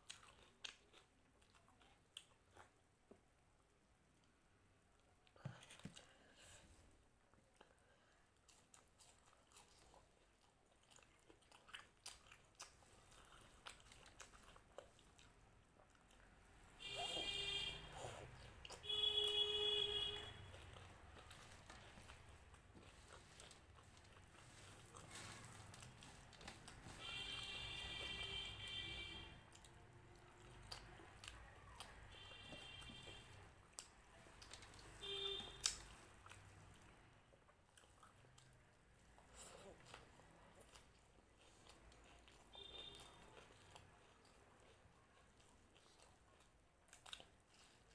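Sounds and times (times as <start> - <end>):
chewing crunchy food: 0.0 - 3.2, 7.3 - 47.9.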